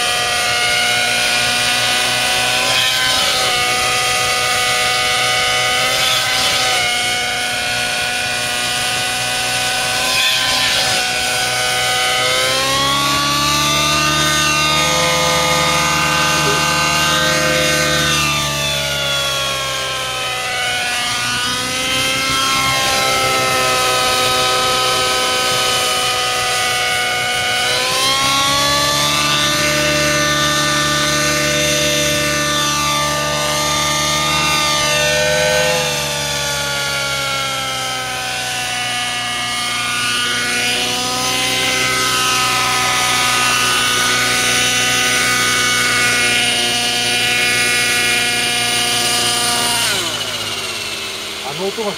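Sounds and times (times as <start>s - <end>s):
model helicopter engine and rotor: 0.0s - 51.9s.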